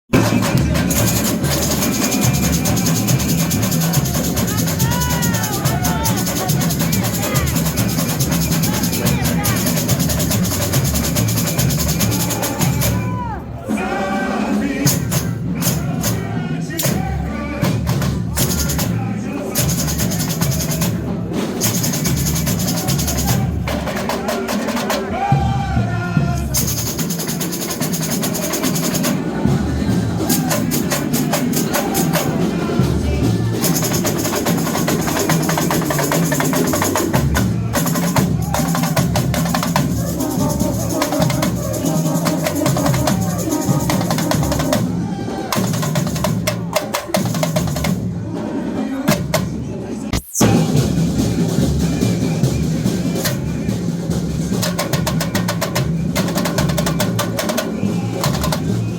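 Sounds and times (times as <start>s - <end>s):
hand percussion: 0.1s - 13.4s, 17.8s - 19.0s, 19.6s - 25.1s, 26.5s - 48.0s
surdo bass drums: 0.1s - 13.4s
snare drums: 0.1s - 58.9s.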